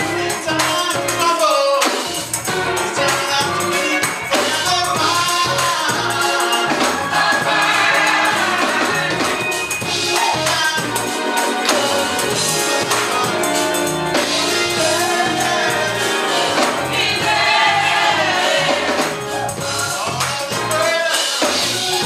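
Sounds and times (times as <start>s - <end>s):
tambourine: 0.0s - 17.3s
bass: 0.0s - 22.0s
live band playing: 0.0s - 22.0s
gospel choir singing: 2.5s - 22.0s.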